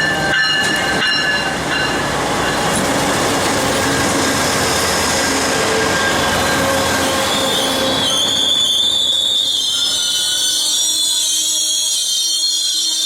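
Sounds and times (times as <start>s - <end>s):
train wheels rumbling on rails: 0.0s - 13.0s
train wheels squealing: 5.6s - 13.0s.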